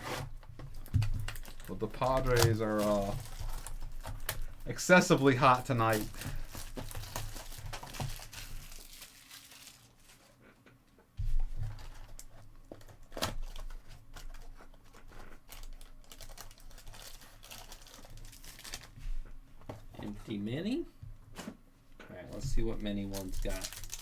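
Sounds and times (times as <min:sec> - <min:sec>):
wrappers crinkling and tearing: 0:00.0 - 0:10.4, 0:11.6 - 0:19.0, 0:22.9 - 0:24.0.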